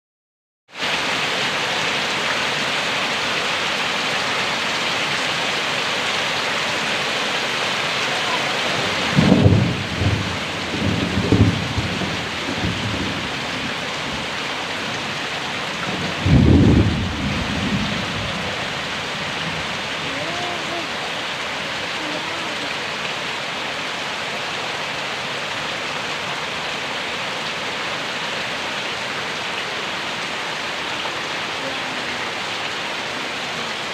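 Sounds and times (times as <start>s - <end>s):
heavy rain pouring: 0.7s - 33.9s
thunder rumbling: 8.8s - 14.3s, 15.8s - 20.6s.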